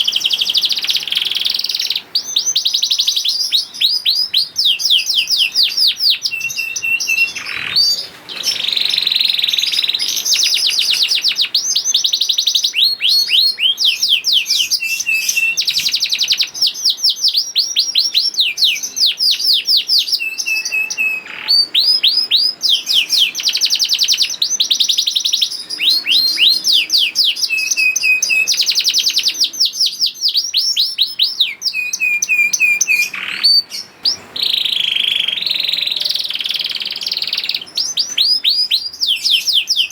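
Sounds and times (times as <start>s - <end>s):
canary singing in high trills: 0.0s - 39.9s.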